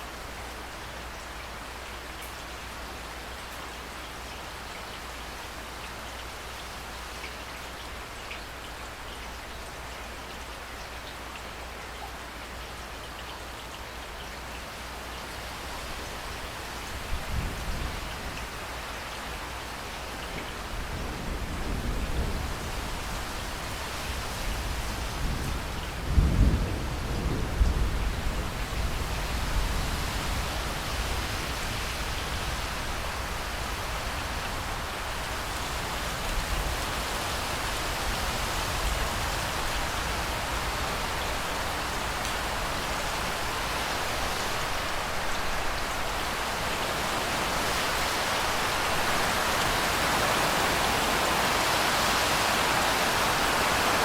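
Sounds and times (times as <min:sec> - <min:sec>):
steady rain: 0:00.0 - 0:54.0
low roll of thunder: 0:20.6 - 0:30.5.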